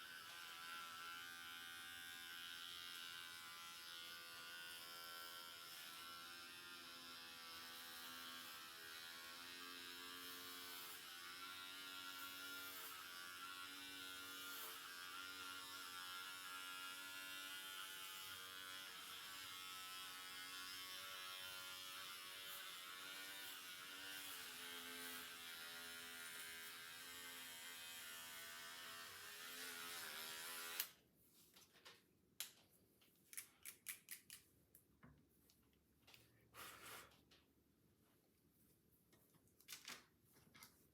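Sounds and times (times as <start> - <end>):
electric hair clippers buzzing: 0.0 - 31.0.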